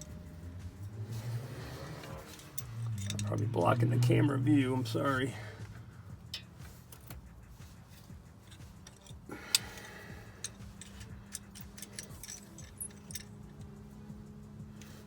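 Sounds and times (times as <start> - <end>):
hand tools clicking on metal: 1.7 - 4.2, 8.4 - 13.7.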